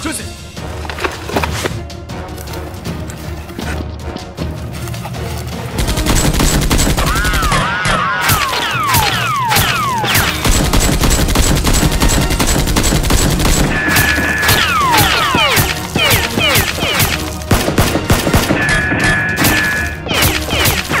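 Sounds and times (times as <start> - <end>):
automatic gunfire: 5.8 - 7.5, 8.4 - 18.7.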